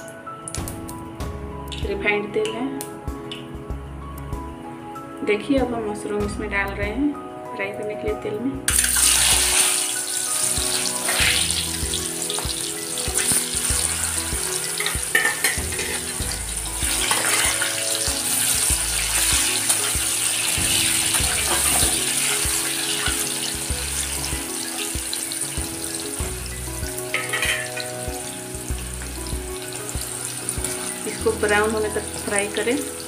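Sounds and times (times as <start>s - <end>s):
mushrooms sizzling in hot oil: 8.7s - 33.0s.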